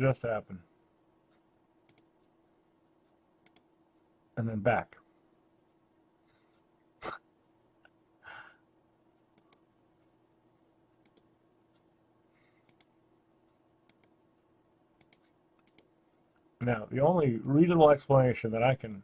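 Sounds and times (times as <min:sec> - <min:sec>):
faint steady hum: 0:00.0 - 0:19.0
computer mouse clicking: 0:01.3 - 0:02.4, 0:03.0 - 0:04.0, 0:09.2 - 0:10.1, 0:10.9 - 0:11.9, 0:12.6 - 0:16.5.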